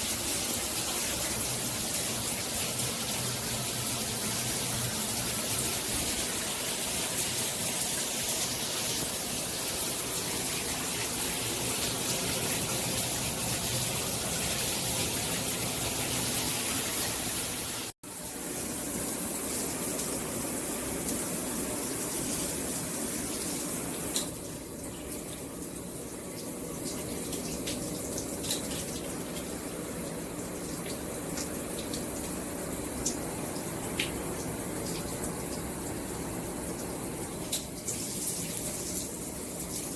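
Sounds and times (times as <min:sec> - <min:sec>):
water spraying from shower head: 0:00.0 - 0:18.0, 0:37.2 - 0:39.9.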